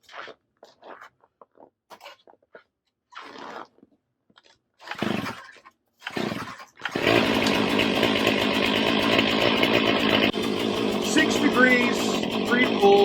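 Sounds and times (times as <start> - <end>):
chainsaw starter cord pulls: 4.8 - 13.0
chainsaw engine running: 6.2 - 13.0.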